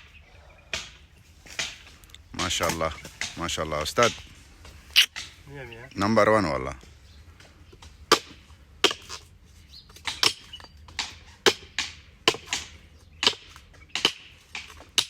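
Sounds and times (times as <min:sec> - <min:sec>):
blade chopping palm trunk: 0:10.1 - 0:15.0.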